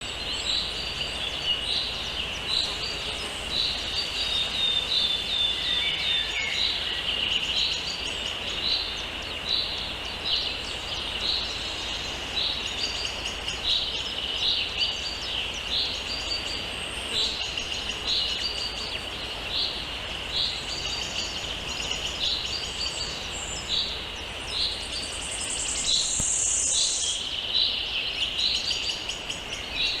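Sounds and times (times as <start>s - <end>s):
small songbird chirping: 0.0s - 30.0s.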